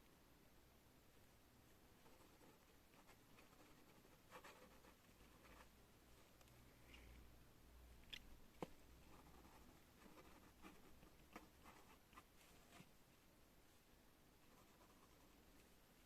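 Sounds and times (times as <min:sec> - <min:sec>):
pen scratching on paper: 0:02.0 - 0:05.7, 0:09.1 - 0:12.0.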